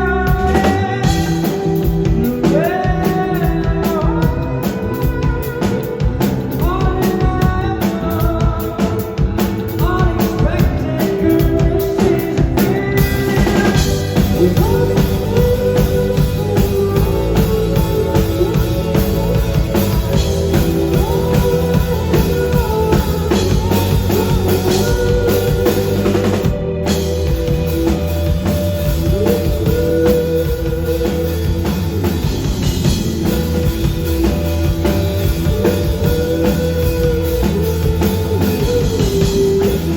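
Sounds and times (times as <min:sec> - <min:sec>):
drum kit beat: 0:00.0 - 0:39.9
live rock band playing: 0:00.0 - 0:39.9
person singing: 0:00.0 - 0:39.9.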